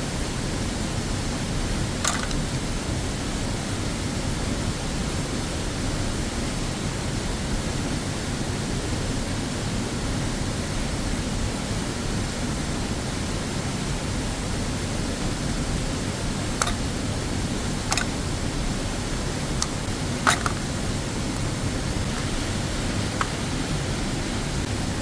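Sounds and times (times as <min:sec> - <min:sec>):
waterfall rushing: 0:15.4 - 0:25.0.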